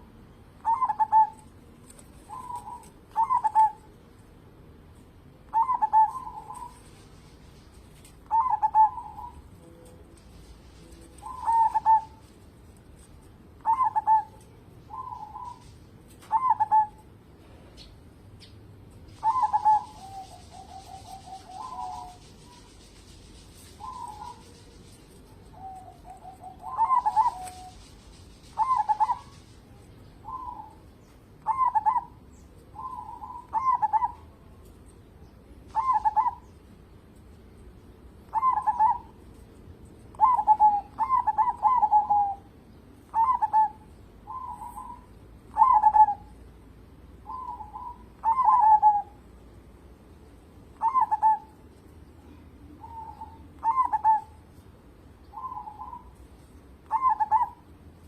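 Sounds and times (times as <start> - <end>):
dove cooing: 0.0 - 3.9, 5.5 - 12.4, 13.6 - 17.2, 19.1 - 30.8, 31.4 - 34.5, 35.7 - 36.5, 38.3 - 39.2, 40.1 - 46.4, 47.2 - 49.2, 50.8 - 51.6, 52.3 - 54.4, 55.3 - 56.2, 56.8 - 57.7.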